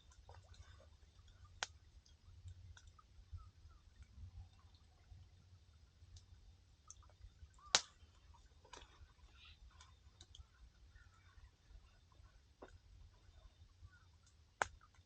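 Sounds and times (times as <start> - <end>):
campfire crackling: 0.0 - 15.0
loud snap of fire: 7.6 - 8.0.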